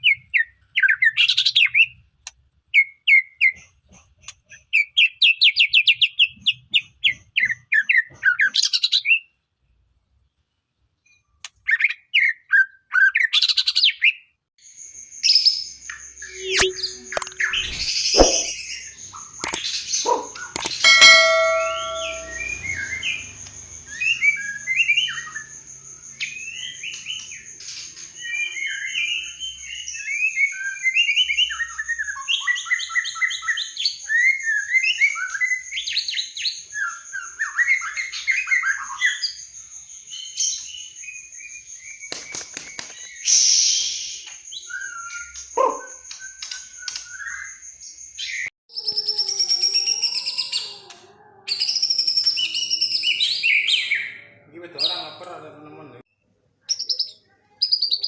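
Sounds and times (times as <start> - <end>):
songbird singing whistled phrases: 51.5 - 54.2.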